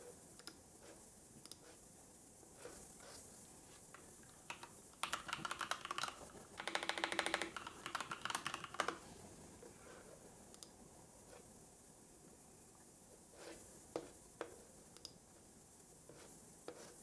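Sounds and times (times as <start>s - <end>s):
keyboard key clicks: 4.5s - 9.0s.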